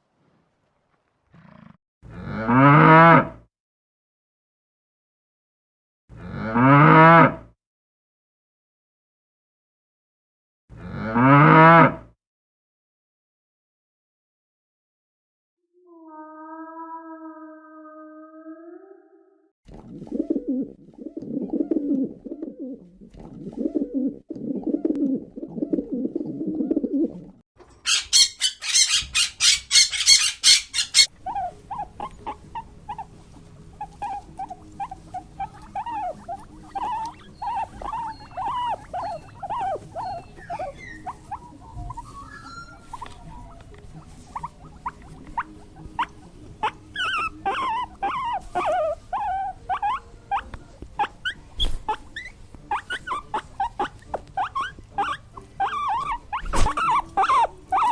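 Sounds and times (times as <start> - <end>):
low cooing: 15.9 - 27.4, 30.4 - 57.9.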